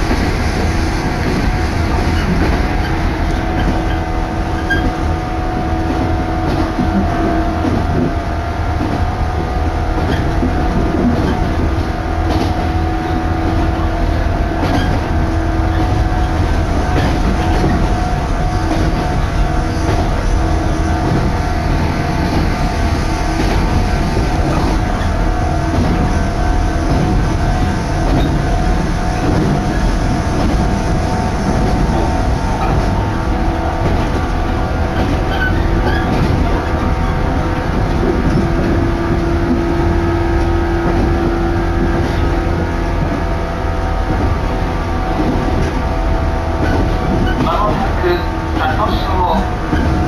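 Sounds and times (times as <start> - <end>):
train wheels and car body rumbling: 0.0 - 50.0
steady hum: 17.8 - 49.7.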